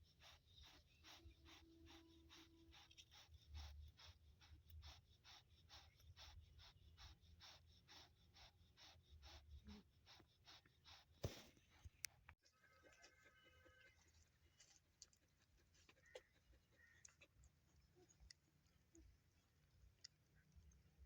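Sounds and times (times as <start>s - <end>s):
dog panting: 0.0s - 12.0s, 14.6s - 17.5s.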